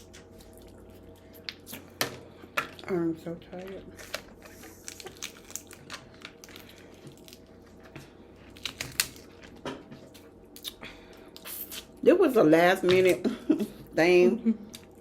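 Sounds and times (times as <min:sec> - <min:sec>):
crab shells cracking: 0:04.0 - 0:09.6.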